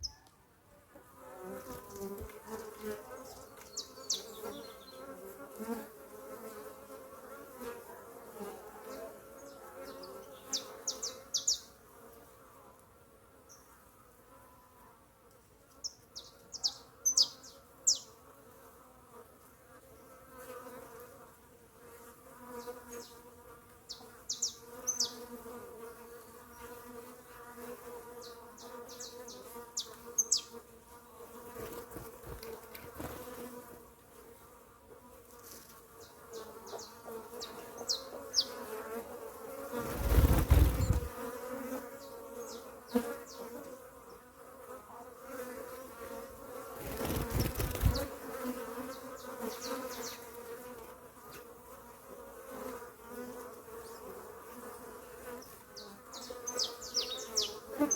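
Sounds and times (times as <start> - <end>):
high bird chirps: 0.0 - 0.3, 3.7 - 5.0, 10.3 - 11.7, 15.8 - 18.1, 23.9 - 25.2, 28.6 - 30.5, 55.8 - 57.9
bees buzzing: 1.0 - 12.7, 15.8 - 57.9.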